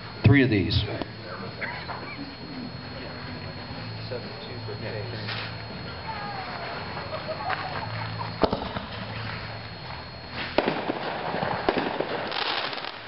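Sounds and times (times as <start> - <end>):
firework crackling: 5.1 - 13.0
firework bangs: 8.4 - 9.4, 10.3 - 13.0.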